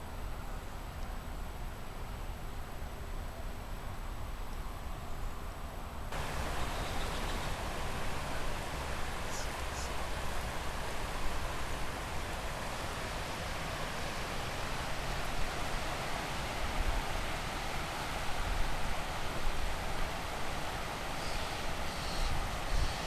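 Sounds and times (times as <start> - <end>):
flooded river rushing: 6.1 - 23.0.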